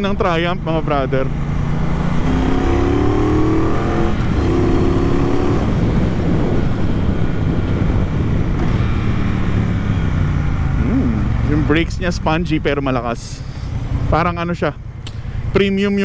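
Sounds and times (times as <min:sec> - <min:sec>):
motorcycle engine accelerating: 0:00.0 - 0:16.0
wind rush: 0:01.8 - 0:14.1.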